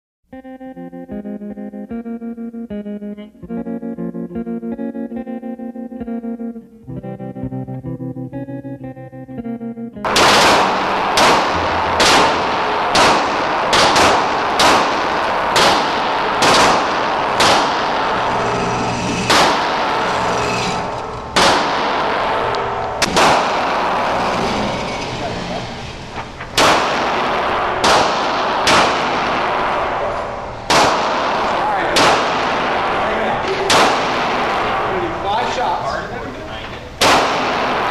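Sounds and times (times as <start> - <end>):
guitar music: 0.3 - 37.0
dense gunfire din: 10.0 - 18.6, 19.2 - 24.1, 26.5 - 35.3, 37.0 - 37.9
single gunshots: 10.1 - 18.3, 19.2 - 20.1, 21.3 - 22.4, 23.0 - 23.9, 26.5 - 30.0, 30.6 - 34.9, 37.0 - 37.9.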